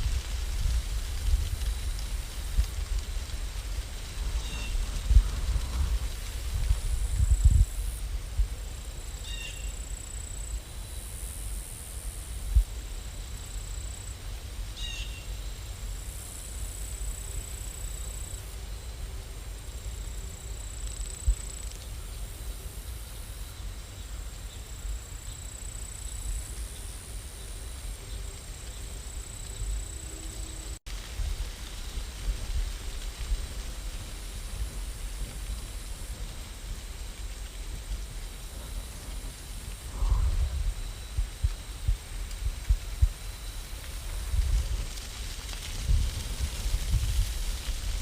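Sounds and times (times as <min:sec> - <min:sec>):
rain rumble: 0:00.0 - 0:48.0
faint high whine: 0:33.5 - 0:45.0.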